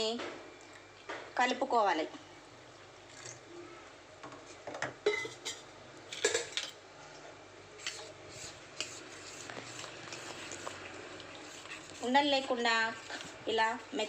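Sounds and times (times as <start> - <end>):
spoon scraping a bowl: 7.8 - 13.2.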